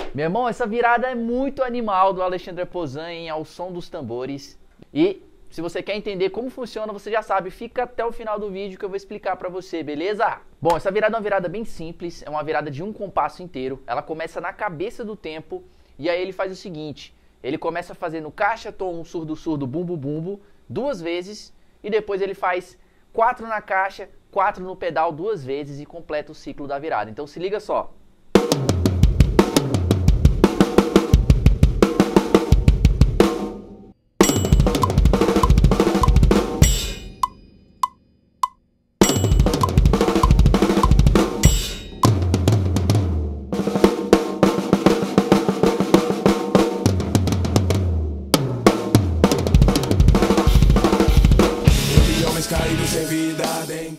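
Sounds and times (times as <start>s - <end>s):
backing music: 28.4s - 37.3s, 39.0s - 53.9s
drum kit fill: 28.4s - 37.4s, 39.0s - 53.9s.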